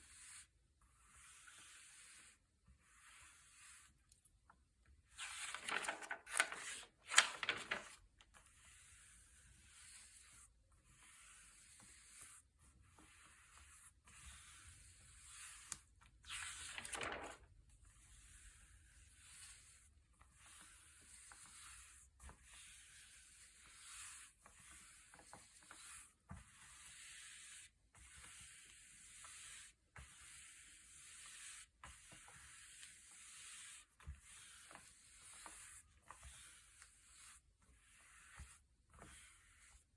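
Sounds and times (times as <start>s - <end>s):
pages turning with paper swish: 5.1s - 8.0s, 15.6s - 17.4s
faint paper rubbing: 5.1s - 17.4s.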